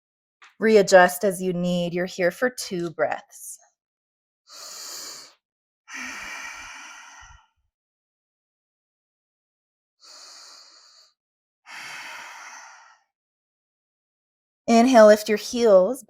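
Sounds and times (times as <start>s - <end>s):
woman breathing deeply: 4.5s - 7.6s, 10.0s - 13.1s.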